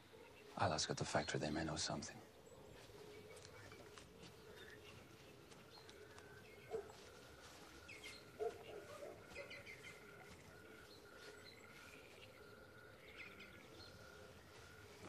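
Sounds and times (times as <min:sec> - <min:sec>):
faint birdsong chirps: 0:00.0 - 0:15.0.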